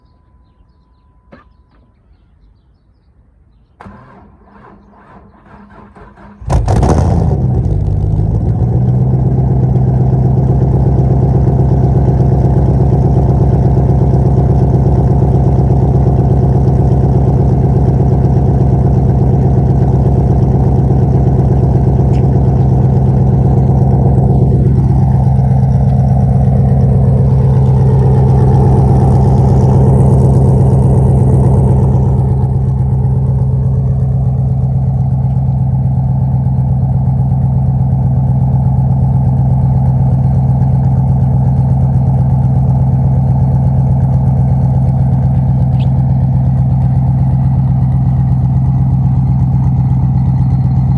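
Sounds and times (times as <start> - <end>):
car engine idling: 3.8 - 50.9.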